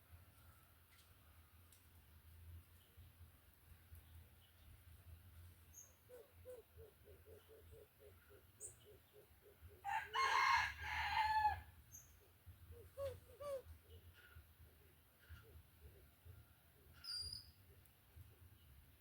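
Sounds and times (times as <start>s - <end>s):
small birds chirping: 2.6s - 9.9s, 11.9s - 19.0s
rooster crowing: 9.8s - 11.7s.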